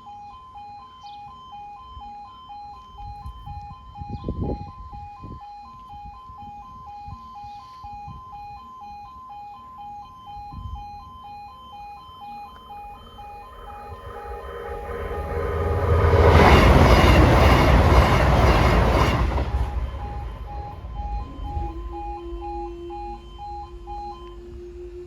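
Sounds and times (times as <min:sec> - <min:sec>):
level crossing two-tone alarm: 0:00.0 - 0:24.6
low rumble: 0:12.6 - 0:24.3.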